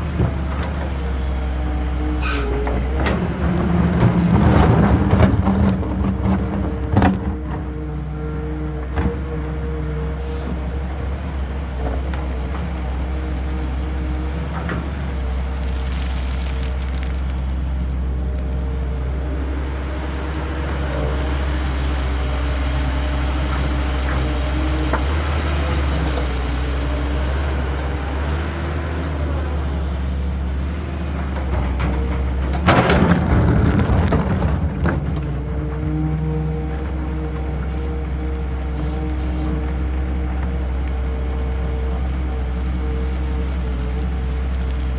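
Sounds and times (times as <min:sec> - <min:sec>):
diesel excavator engine rumbling: 0:00.0 - 0:44.9
loud rushing clatter: 0:32.5 - 0:35.3.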